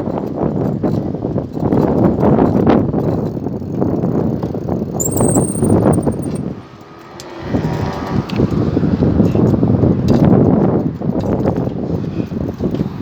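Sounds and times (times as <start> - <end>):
faint high whistle: 5.0 - 6.4
wind buffeting microphone: 7.5 - 13.0.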